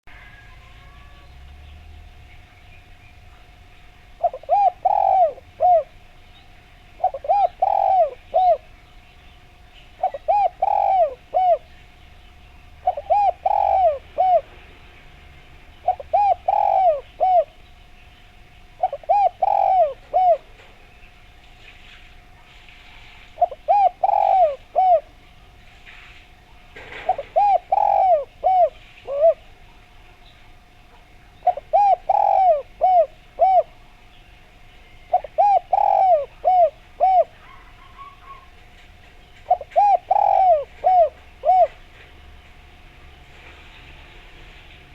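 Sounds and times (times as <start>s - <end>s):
dove cooing: 0.0s - 1.4s, 4.1s - 6.2s, 6.8s - 8.8s, 9.9s - 12.0s, 12.7s - 14.7s, 15.8s - 17.6s, 18.6s - 20.9s, 22.2s - 26.0s, 26.8s - 29.8s, 30.5s - 34.0s, 34.9s - 44.0s.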